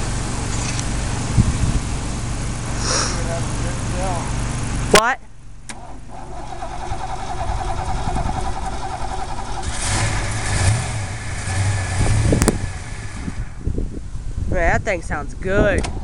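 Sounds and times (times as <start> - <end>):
car engine revving: 5.8 - 13.9.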